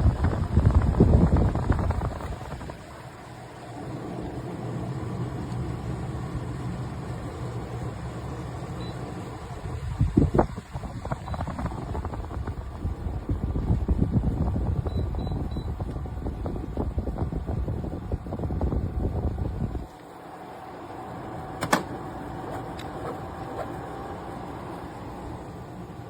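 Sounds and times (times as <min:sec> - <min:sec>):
air conditioner running: 0:00.0 - 0:26.0
sharp click: 0:21.6 - 0:22.0.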